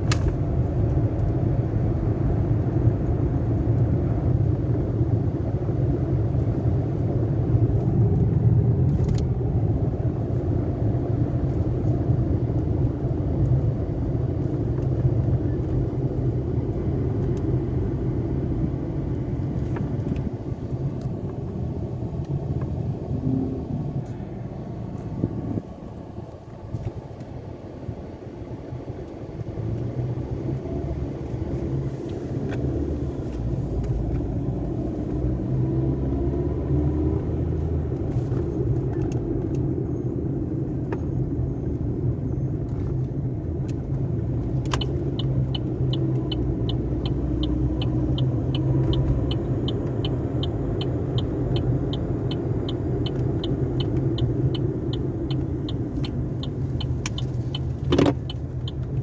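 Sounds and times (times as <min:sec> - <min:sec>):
regular ticking: 0:44.5 - 0:59.0.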